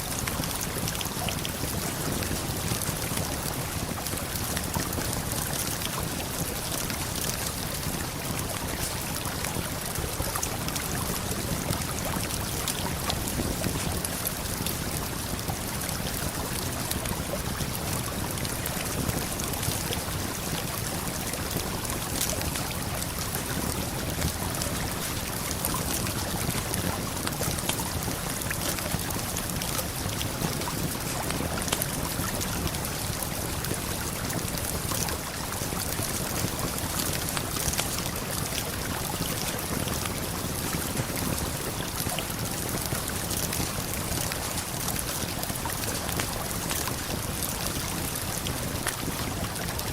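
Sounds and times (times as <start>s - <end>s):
campfire crackling and popping: 0.2s - 49.7s.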